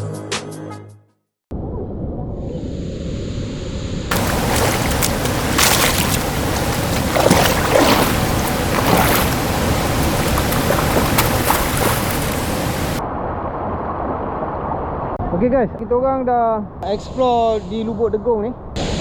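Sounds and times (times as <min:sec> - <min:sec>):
water splashes: 0:04.1 - 0:13.0
waterfall rushing: 0:04.1 - 0:13.0.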